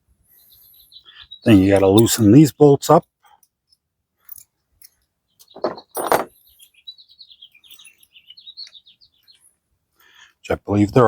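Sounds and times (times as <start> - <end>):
bird chirping: 0.3 - 2.4, 4.8 - 10.4.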